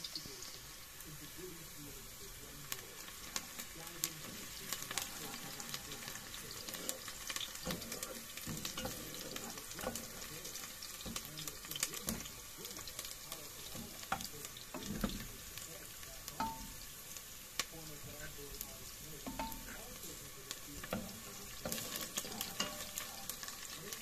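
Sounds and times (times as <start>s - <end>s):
beef sizzling in a pot: 0.0s - 24.0s
wooden spoon scraping metal pot: 4.2s - 17.0s, 20.8s - 24.0s.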